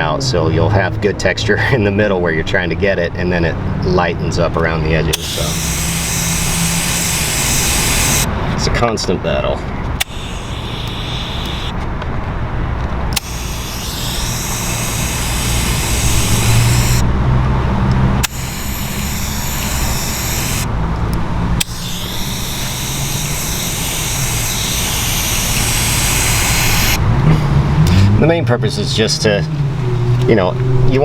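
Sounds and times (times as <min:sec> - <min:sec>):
steady low hum: 0:05.0 - 0:08.7, 0:09.9 - 0:27.8
spray gun trigger click: 0:05.1 - 0:08.3, 0:10.0 - 0:11.8, 0:13.2 - 0:17.1, 0:18.2 - 0:27.0
air spray gun hissing: 0:05.1 - 0:08.5, 0:10.0 - 0:11.8, 0:13.2 - 0:17.1, 0:18.2 - 0:27.1.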